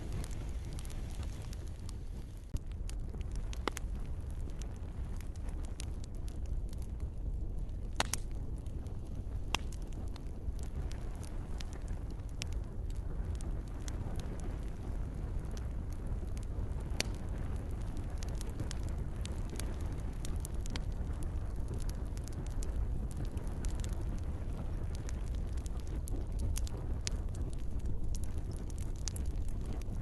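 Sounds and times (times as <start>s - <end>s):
soft rain hiss: 0.0s - 2.6s
campfire crackling and popping: 0.0s - 30.0s
low rumble of flames: 0.0s - 30.0s.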